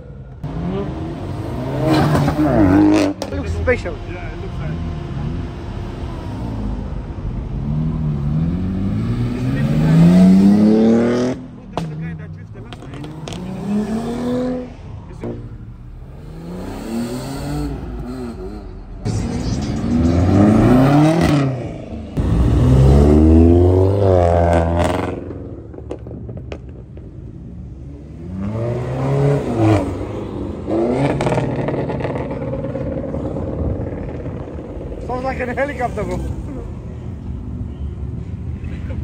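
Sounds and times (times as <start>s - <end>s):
car engines revving hard: 0.4s - 39.0s.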